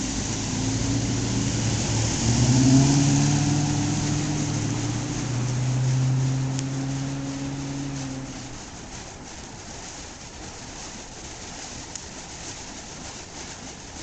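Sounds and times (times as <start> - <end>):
car engine revving: 0.0 - 8.9.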